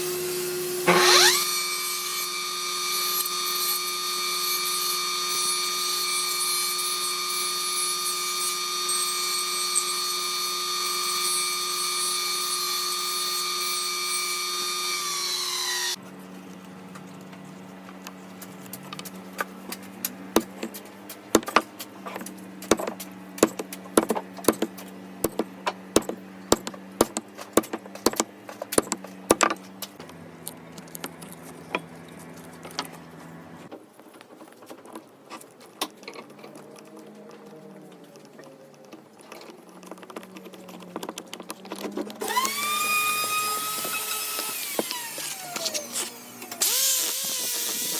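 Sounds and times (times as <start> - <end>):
power tool motor whining: 0.0 - 16.0, 41.7 - 47.9.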